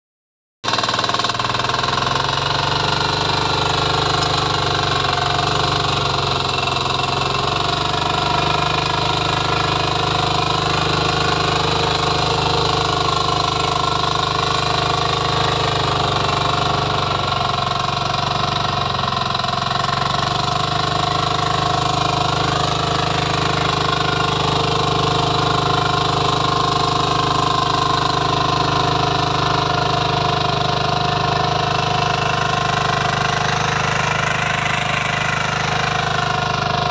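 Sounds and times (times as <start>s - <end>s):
power weeder engine running: 0.6s - 36.9s.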